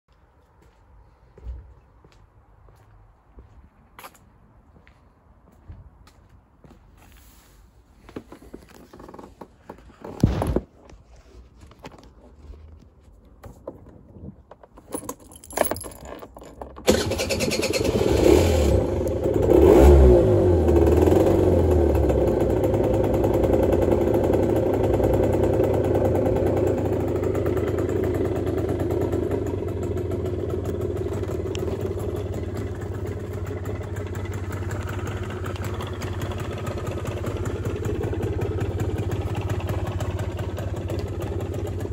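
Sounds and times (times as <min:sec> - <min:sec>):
scooter engine starting and revving: 0:08.2 - 0:10.5, 0:16.8 - 0:41.9.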